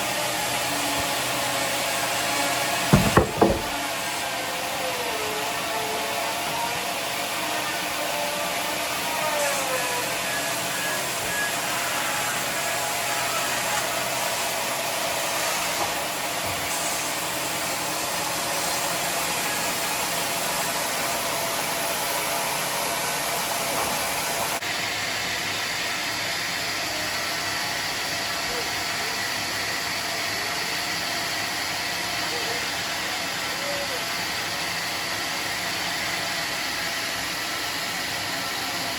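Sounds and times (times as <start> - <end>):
band saw whirring: 0.1 - 15.9.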